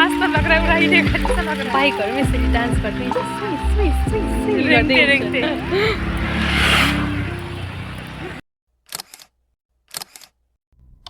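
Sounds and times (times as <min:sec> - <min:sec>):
road noise: 0:00.0 - 0:08.4.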